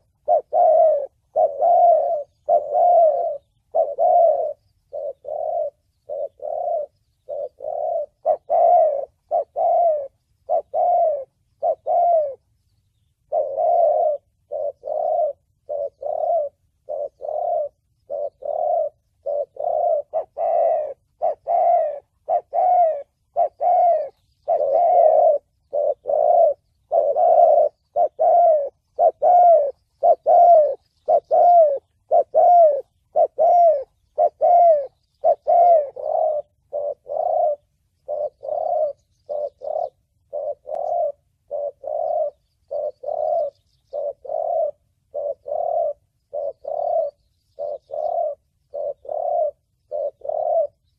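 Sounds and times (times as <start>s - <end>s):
dove cooing: 0.0s - 50.9s.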